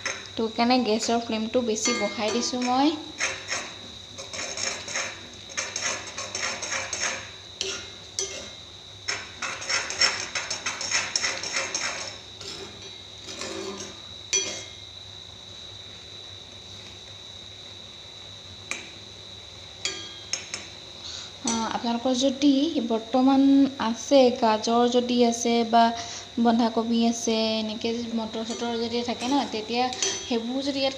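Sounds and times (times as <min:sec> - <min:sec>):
utensil scraping noodles in a wok: 0:02.3 - 0:14.8.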